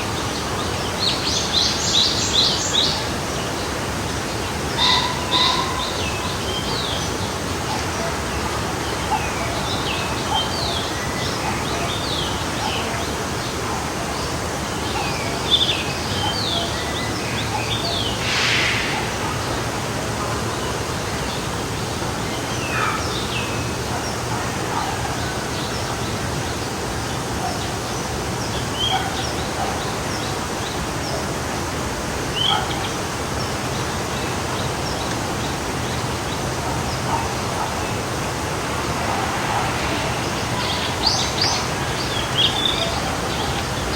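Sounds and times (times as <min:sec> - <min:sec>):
forest stream rushing: 0:00.0 - 0:43.9
brief louder hiss: 0:18.0 - 0:19.8
birds chirping: 0:32.3 - 0:43.9.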